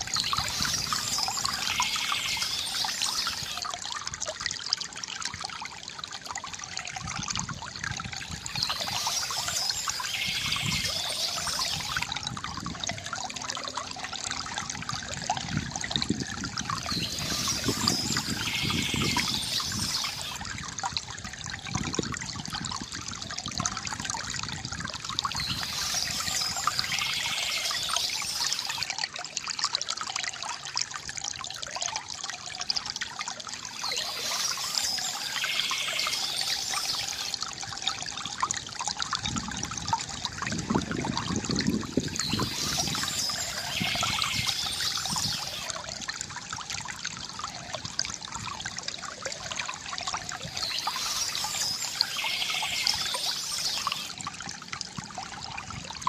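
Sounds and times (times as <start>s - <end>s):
birds chirping: 0.0s - 3.6s, 8.5s - 12.1s, 16.8s - 20.4s, 25.3s - 28.8s, 33.7s - 37.4s, 42.1s - 45.7s, 50.5s - 54.1s
water trickling from fountain: 0.0s - 56.0s.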